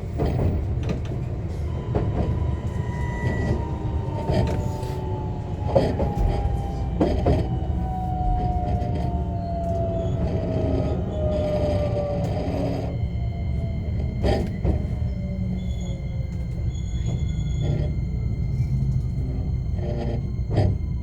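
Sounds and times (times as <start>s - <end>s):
wheel-on-rail running noise: 0.0s - 21.0s
traction motor whine falling in pitch: 1.8s - 21.0s.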